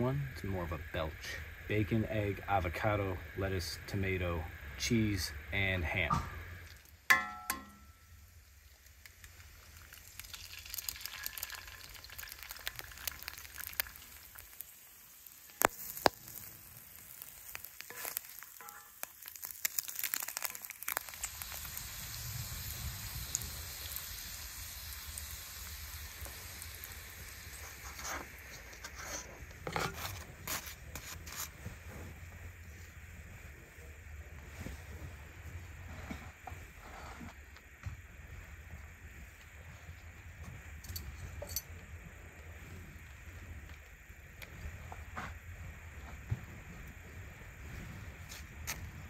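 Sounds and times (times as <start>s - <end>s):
bacon and eggs sizzling: 4.4s - 31.6s.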